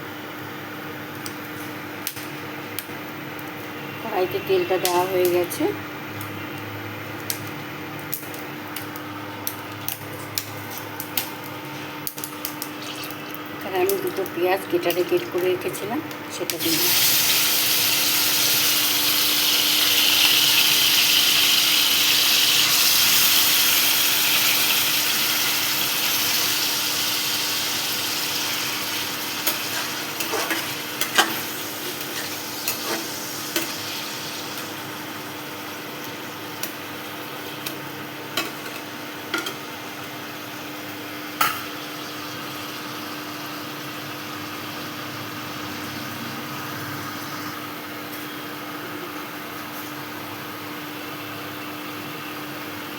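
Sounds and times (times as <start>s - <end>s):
onions sizzling in hot oil: 12.0s - 48.6s
spatula scraping a pan: 29.7s - 31.3s.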